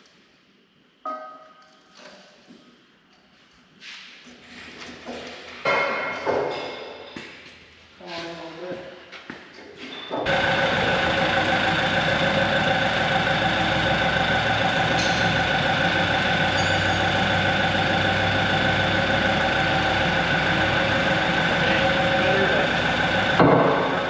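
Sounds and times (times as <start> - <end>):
engine idling with whine: 10.2 - 24.0.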